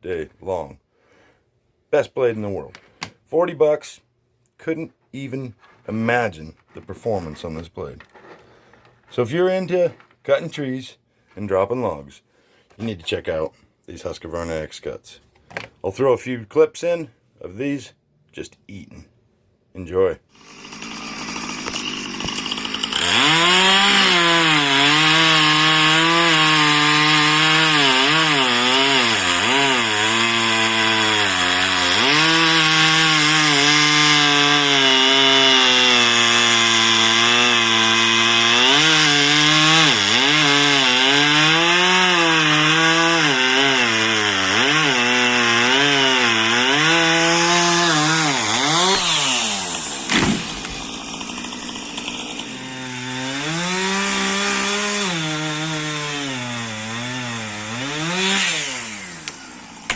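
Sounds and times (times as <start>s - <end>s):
chainsaw cutting wood: 20.3s - 59.9s.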